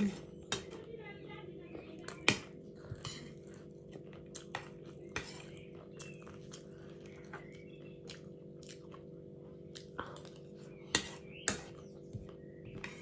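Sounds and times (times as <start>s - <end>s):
steady low hum: 0.0s - 13.0s
person chewing: 2.8s - 11.9s.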